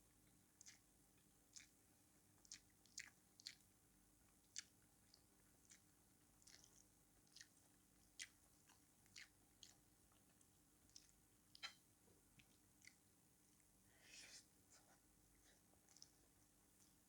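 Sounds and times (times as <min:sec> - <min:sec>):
wet mouth chewing clicks: 0:00.6 - 0:00.8, 0:01.5 - 0:01.8, 0:02.4 - 0:03.6, 0:04.5 - 0:07.5, 0:12.4 - 0:13.0.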